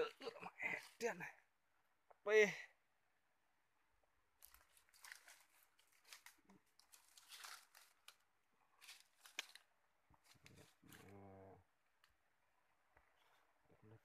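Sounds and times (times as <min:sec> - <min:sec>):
faint crackling and rustling: 0:04.4 - 0:12.2, 0:12.9 - 0:14.0.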